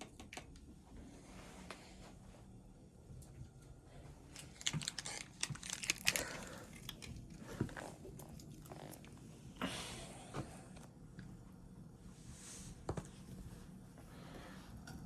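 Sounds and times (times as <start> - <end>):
crinkling and rustling: 4.2 - 9.2.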